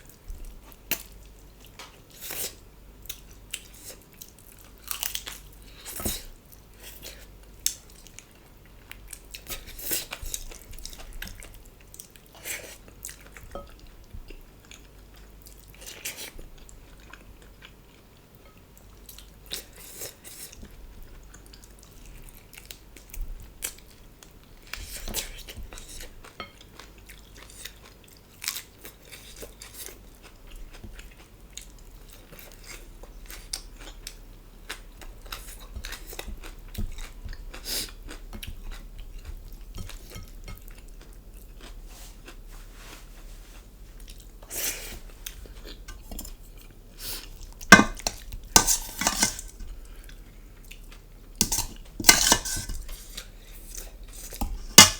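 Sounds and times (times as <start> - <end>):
chewing with crunching: 0.0 - 54.9
cutlery clinking on a plate: 47.7 - 49.6, 51.4 - 52.8.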